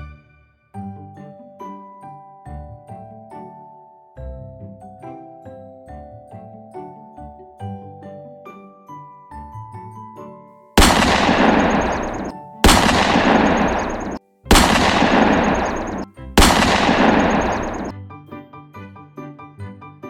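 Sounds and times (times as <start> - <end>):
loud blast sound effects: 10.8 - 17.9.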